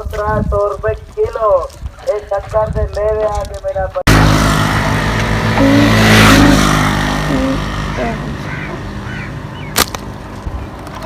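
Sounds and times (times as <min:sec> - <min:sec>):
vehicle engine running: 0:04.1 - 0:11.0.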